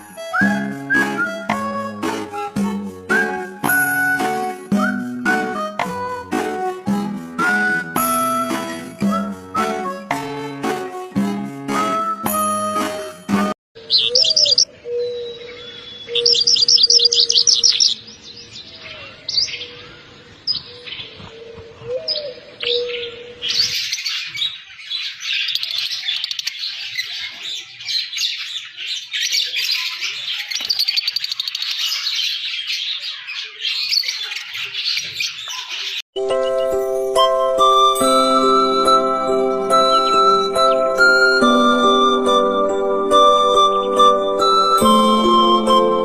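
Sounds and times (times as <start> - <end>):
bird trills and calls: 13.8 - 21.2, 21.8 - 36.0
chorus of birds chirping: 13.8 - 36.8.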